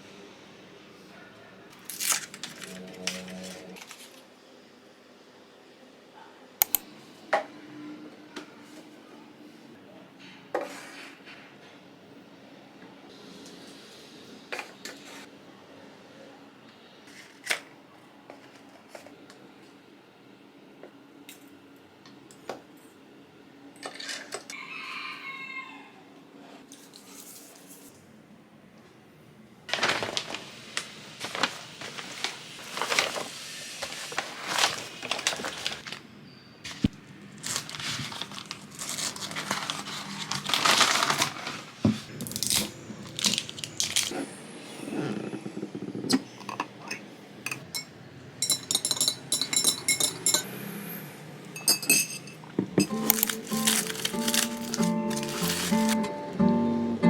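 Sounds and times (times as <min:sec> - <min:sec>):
packaging torn and crinkled: 0:01.8 - 0:04.2, 0:31.2 - 0:36.0, 0:36.7 - 0:44.1, 0:52.9 - 0:56.0.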